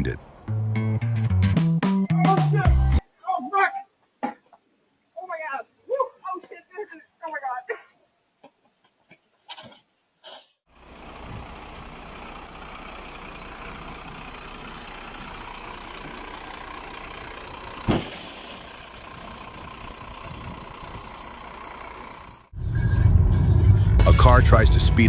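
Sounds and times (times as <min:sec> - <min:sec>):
vehicle engine and road noise: 0:00.0 - 0:01.4, 0:10.7 - 0:25.0
sharp bang: 0:17.8 - 0:18.6.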